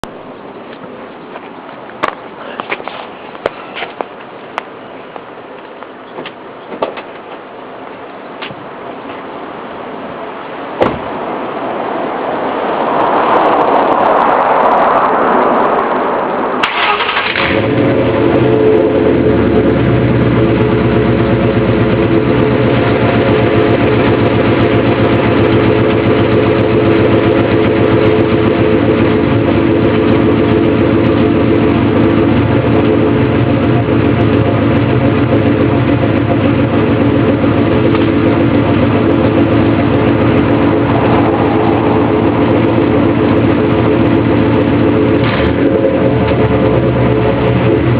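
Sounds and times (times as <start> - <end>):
car engine idling: 16.6 - 47.9.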